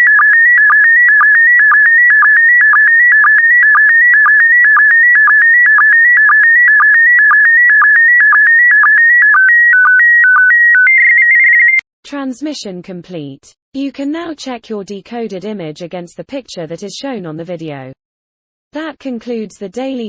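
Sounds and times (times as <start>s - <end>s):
shrill electronic signal tone: 0.0s - 11.8s.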